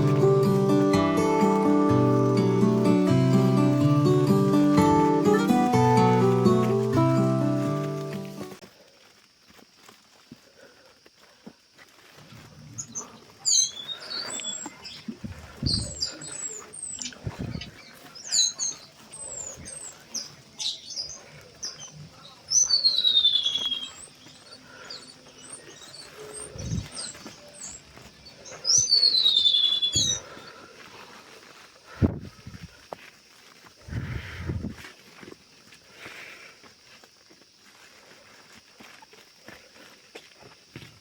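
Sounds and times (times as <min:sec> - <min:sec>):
birds chirping and calling: 0:00.0 - 0:08.4, 0:12.7 - 0:30.6.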